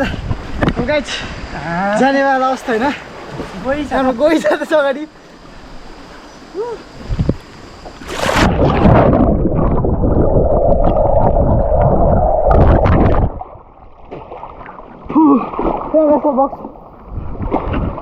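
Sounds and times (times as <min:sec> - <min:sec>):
muffled underwater rushing: 0:06.9 - 0:18.0
microphone splashing into water: 0:07.0 - 0:18.0.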